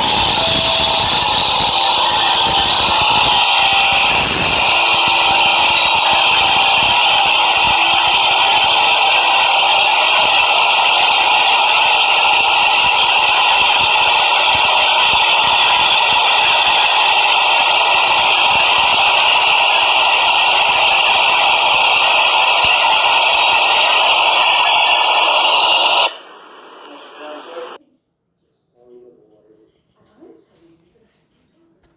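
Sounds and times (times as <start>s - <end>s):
subway train rattling on track: 0.0s - 23.4s.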